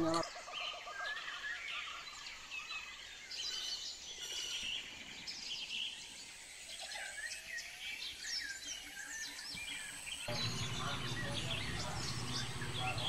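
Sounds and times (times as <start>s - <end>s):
birds chirping: 0.0s - 13.0s
faint low hum: 10.3s - 13.0s.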